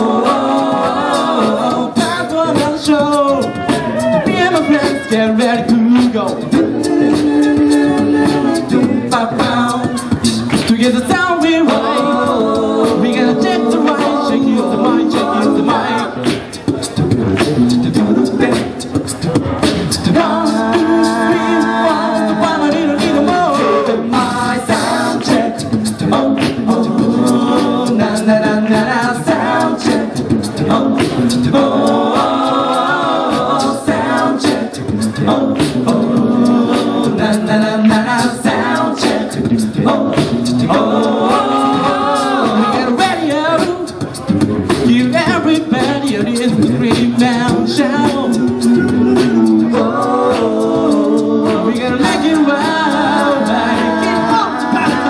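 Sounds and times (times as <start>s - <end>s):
a cappella group singing harmony: 0.0s - 55.0s
beatboxed percussion: 0.0s - 55.0s.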